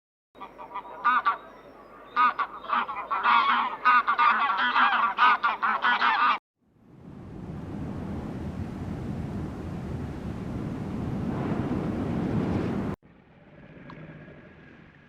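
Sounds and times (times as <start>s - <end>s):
geese honking: 0.4s - 6.4s
low rushing noise: 6.7s - 15.0s.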